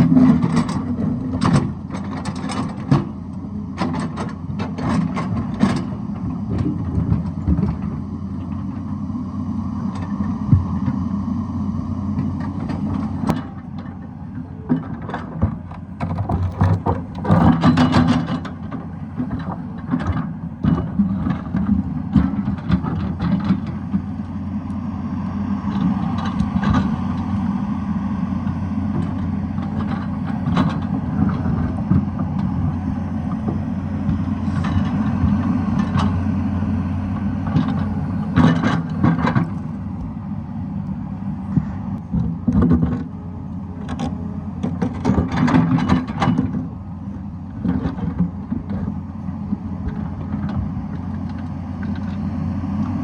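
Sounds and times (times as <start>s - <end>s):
clanks and knocks of machine and rock: 0.0s - 8.8s, 12.2s - 24.1s, 25.7s - 27.3s, 28.4s - 36.2s, 37.4s - 39.7s, 41.5s - 43.1s, 43.8s - 46.7s, 47.5s - 49.0s, 49.8s - 52.2s
excavator diesel engine running: 0.0s - 53.0s.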